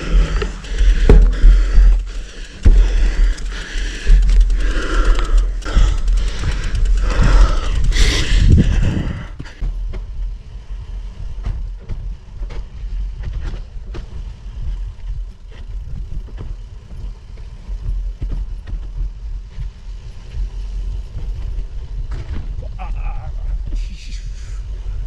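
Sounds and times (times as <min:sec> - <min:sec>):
tyres clicking and rattling: 0:00.0 - 0:09.5
bike rolling on gravel: 0:00.0 - 0:22.6.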